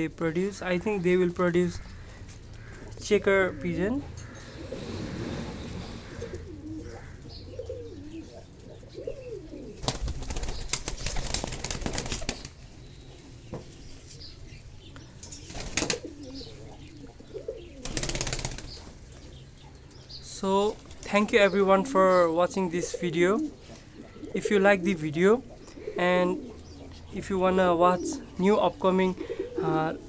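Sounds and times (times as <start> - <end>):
pigeons cooing: 0.8 - 30.0
wings flapping: 9.7 - 12.6, 15.4 - 16.3, 17.8 - 19.0, 20.7 - 21.2.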